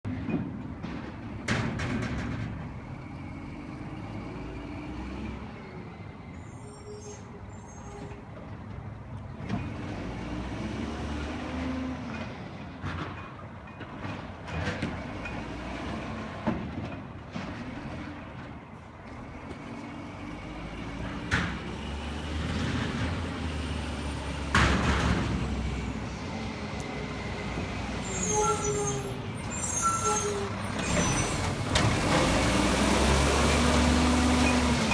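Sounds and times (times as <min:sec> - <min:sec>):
metal bangs and clanks: 0:00.1 - 0:02.9, 0:24.4 - 0:26.0.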